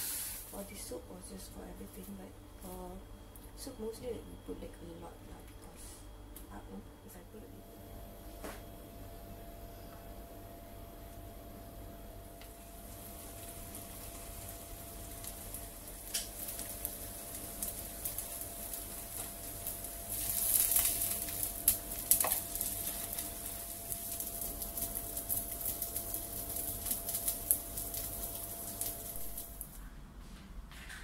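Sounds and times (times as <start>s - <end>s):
patties sizzling in oil: 0.0s - 0.9s, 10.9s - 29.8s.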